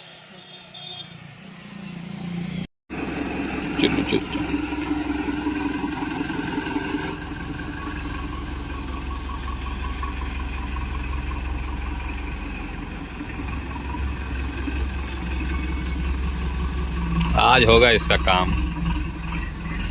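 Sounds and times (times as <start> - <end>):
faint high chirp: 0.0 - 2.6, 7.2 - 17.3
vehicle engine running: 1.8 - 19.9.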